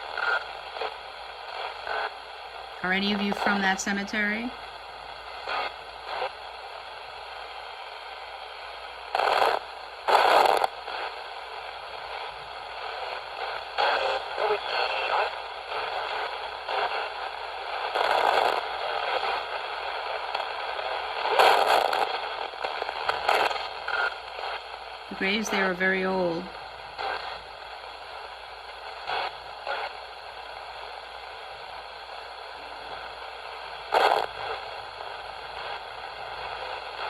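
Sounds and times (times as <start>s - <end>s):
radio static crackling: 0.0s - 37.0s
radio station fragments: 2.8s - 4.5s, 23.1s - 27.4s.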